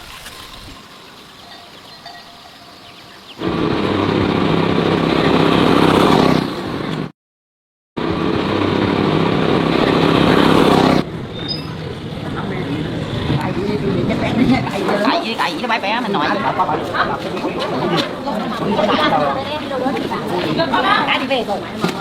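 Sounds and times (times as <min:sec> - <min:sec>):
motor vehicle engine running: 0:03.4 - 0:07.1, 0:08.0 - 0:14.7.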